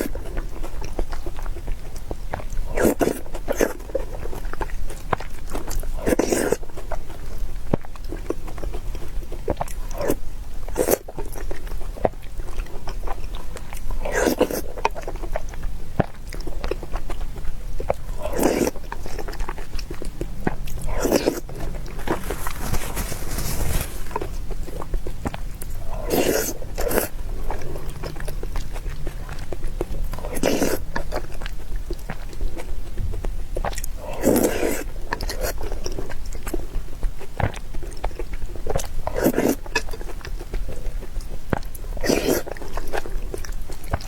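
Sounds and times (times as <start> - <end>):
person chewing with wet smacks: 0.0 - 44.0
loud bite or slurp: 2.8 - 3.8, 18.2 - 19.4, 20.7 - 24.3, 25.8 - 29.0, 30.2 - 31.2, 34.0 - 35.6, 42.0 - 42.5.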